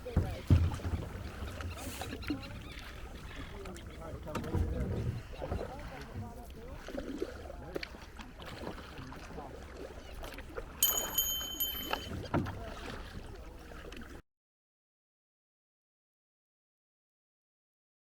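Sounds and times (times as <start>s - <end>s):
paddle in water: 0.0s - 14.2s
high ringing tone: 10.8s - 12.2s.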